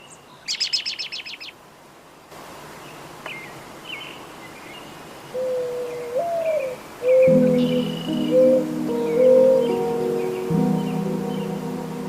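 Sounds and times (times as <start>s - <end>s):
steady hiss: 1.2s - 12.0s
bird trilling: 5.4s - 11.0s.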